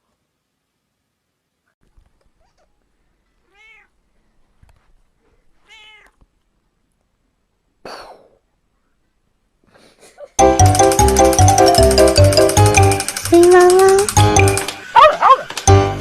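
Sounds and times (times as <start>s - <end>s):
cat meowing: 2.4s - 2.8s, 3.4s - 4.0s, 5.6s - 6.2s.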